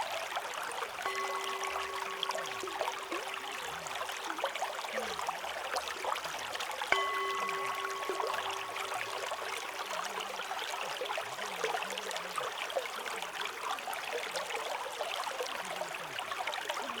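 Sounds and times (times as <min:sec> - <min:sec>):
stream babbling over stones: 0:00.0 - 0:17.0
faint low wavering tone: 0:01.0 - 0:05.3, 0:06.9 - 0:10.6.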